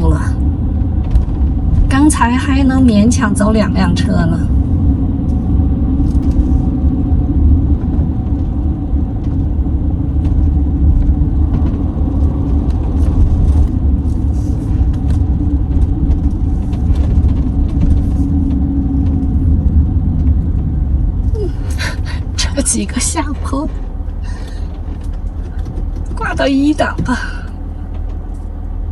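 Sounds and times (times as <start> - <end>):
engine and road rumble: 0.0 - 28.9
light rattles: 0.0 - 28.9.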